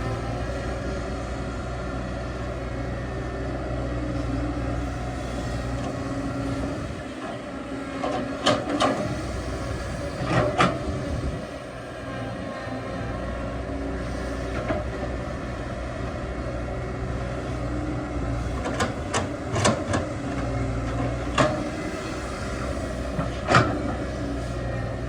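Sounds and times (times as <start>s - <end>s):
excavator engine running: 0.0s - 25.0s.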